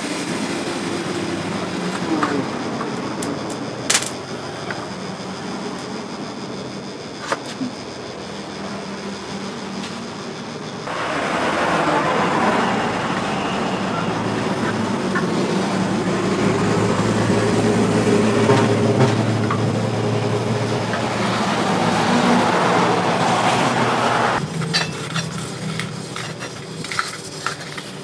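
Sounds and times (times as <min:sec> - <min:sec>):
workshop machine motor running: 0:00.0 - 0:28.0
rough grinding noise: 0:10.6 - 0:28.0.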